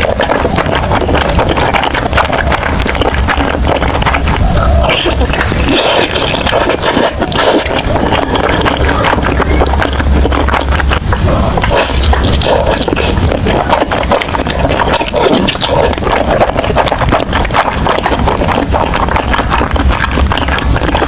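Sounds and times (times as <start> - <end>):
person chewing and crunching food: 0.0 - 21.0
rapid crackles and clicks: 0.0 - 21.0
wet mouth noises: 0.0 - 21.0.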